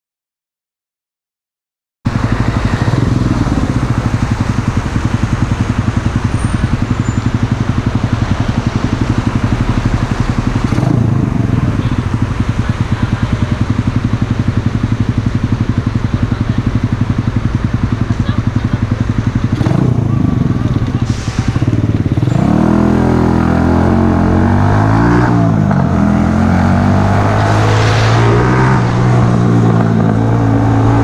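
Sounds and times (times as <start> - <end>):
motorcycle engine idling: 2.1 - 22.3.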